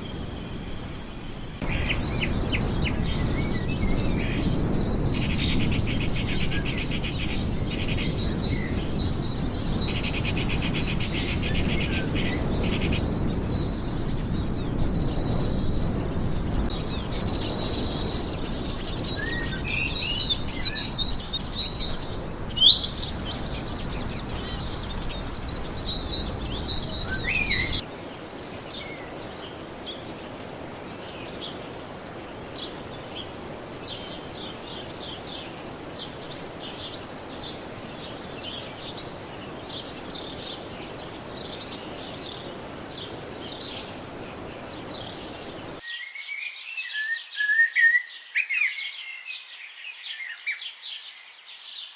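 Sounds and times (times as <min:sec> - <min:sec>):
steady background hiss: 0:00.0 - 0:12.4, 0:16.7 - 0:45.8
birds chirping and whistling: 0:00.0 - 0:27.8.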